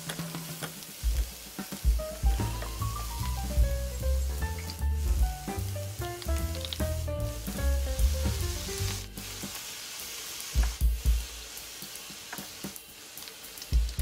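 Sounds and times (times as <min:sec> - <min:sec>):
background music with bass: 0:00.0 - 0:09.6
vegetables sizzling in oil: 0:00.0 - 0:14.0.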